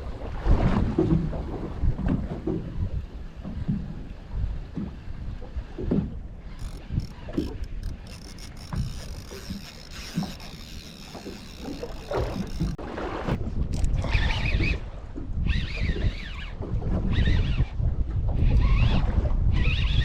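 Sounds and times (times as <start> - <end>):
wind buffeting microphone: 0.0 - 20.0
water slapping against hull: 0.1 - 15.9.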